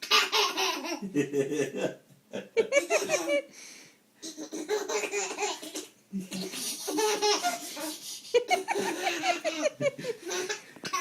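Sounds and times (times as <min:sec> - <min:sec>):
baby laughing: 0:00.0 - 0:01.2, 0:02.6 - 0:03.5, 0:04.2 - 0:11.0.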